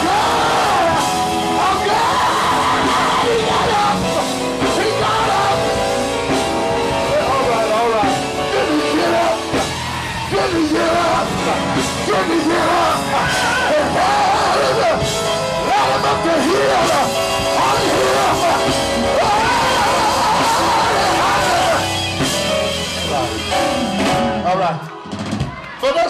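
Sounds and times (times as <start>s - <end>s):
person singing and shouting: 0.0s - 5.8s, 7.0s - 22.0s
gospel band playing: 0.0s - 26.0s.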